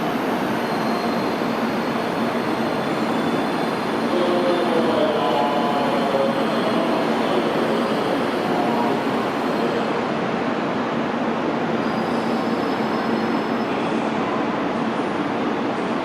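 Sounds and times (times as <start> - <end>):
high wheel squeal: 11.8 - 13.8.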